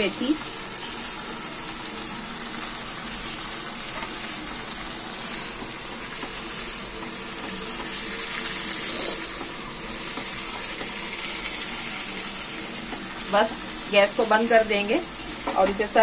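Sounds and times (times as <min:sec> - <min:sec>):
curry sizzling in a pan: 0:00.0 - 0:16.0.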